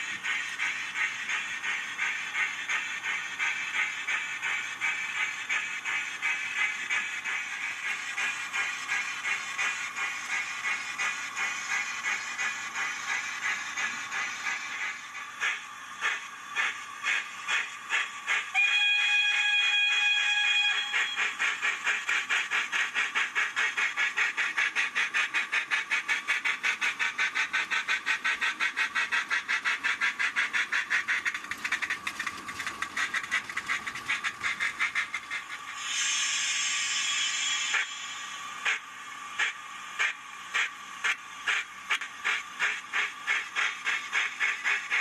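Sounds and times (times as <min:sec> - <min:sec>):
steam exhaust chuffs: 0:00.0 - 0:45.0
steady whistle: 0:18.4 - 0:21.5
loud steam hiss: 0:34.5 - 0:45.0.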